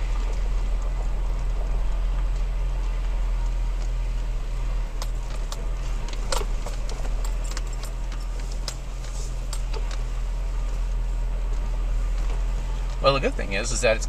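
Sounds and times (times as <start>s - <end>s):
vehicle cab drone: 0.0s - 14.0s
loose things rattling: 4.9s - 10.4s.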